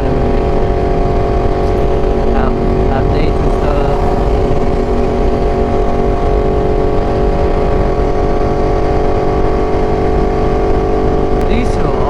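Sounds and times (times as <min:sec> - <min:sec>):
motorcycle engine cruising: 0:00.0 - 0:12.0
wind noise: 0:00.0 - 0:12.0.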